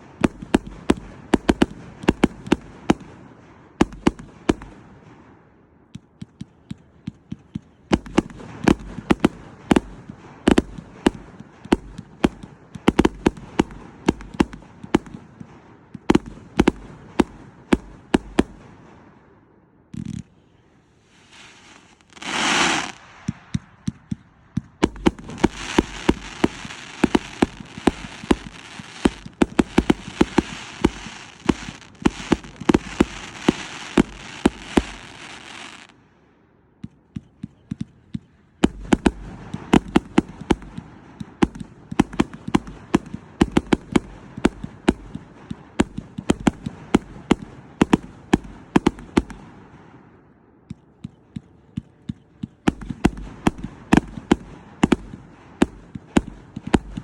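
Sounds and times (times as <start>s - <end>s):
crackling hiss: 19.9s - 36.3s
firework cake firing volleys: 20.1s - 35.9s.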